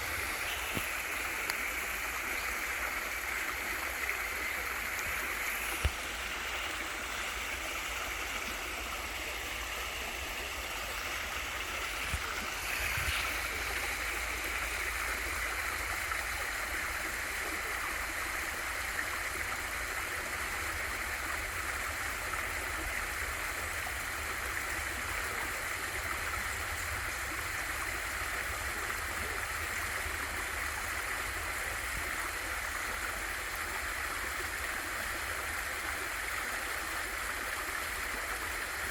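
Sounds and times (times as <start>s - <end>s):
small waterfall rushing: 0.0s - 38.9s.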